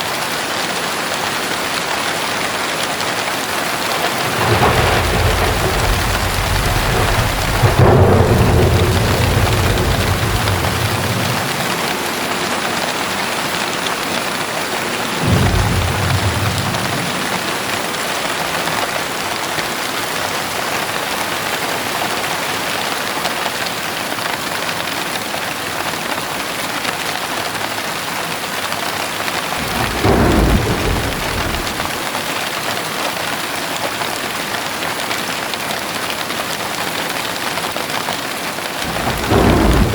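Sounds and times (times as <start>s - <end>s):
heavy rain falling: 0.0s - 39.9s
low thunder rumbling: 3.8s - 18.6s, 29.6s - 32.1s, 38.8s - 39.9s.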